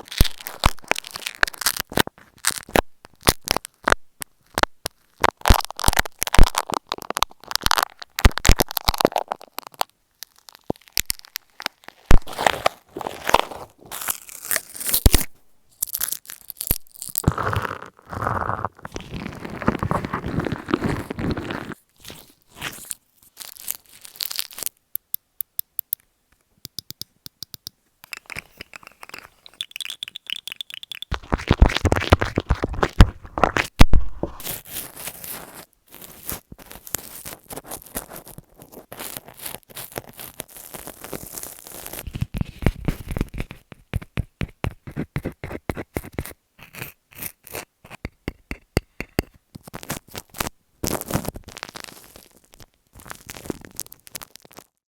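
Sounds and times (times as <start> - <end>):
rustling: 10.3 - 24.8, 28.0 - 44.0, 44.7 - 54.7
scratching and scraping: 12.1 - 24.8, 27.6 - 54.7
quick clicks and taps: 25.0 - 34.0.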